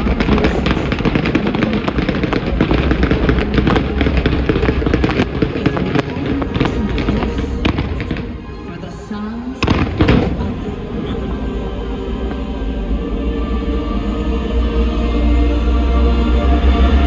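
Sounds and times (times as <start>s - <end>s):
fireworks bangs and crackles: 0.0s - 8.6s, 9.6s - 11.2s
low rumble: 0.0s - 17.0s.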